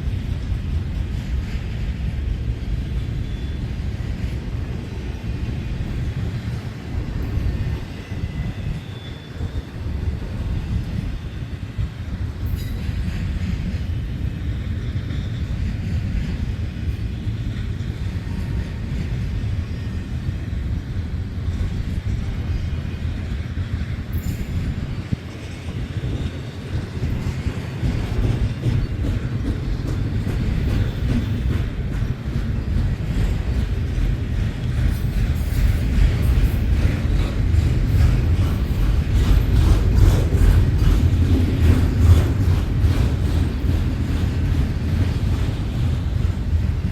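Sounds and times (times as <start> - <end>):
train wheels rumbling on rails: 0.0 - 46.9
faint high wheel squeal: 2.7 - 4.4, 7.1 - 13.4, 24.1 - 29.3.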